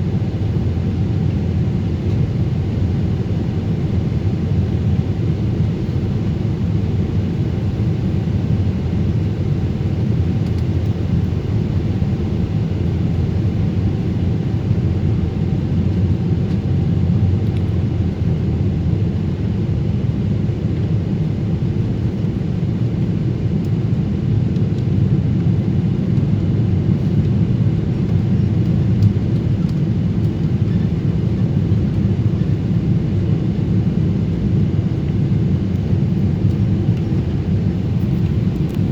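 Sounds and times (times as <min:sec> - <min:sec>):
airplane engines rumbling: 0:00.0 - 0:38.9.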